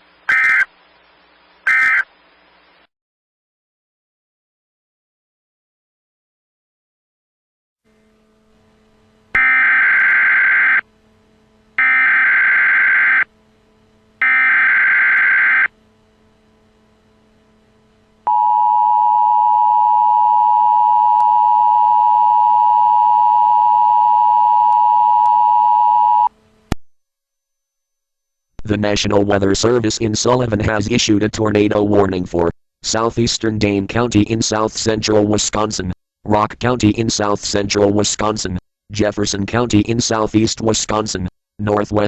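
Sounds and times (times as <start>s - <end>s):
harsh digital warble: 9.3s - 10.8s, 11.8s - 13.3s, 14.2s - 15.7s
two-tone alert signal: 9.4s - 10.8s.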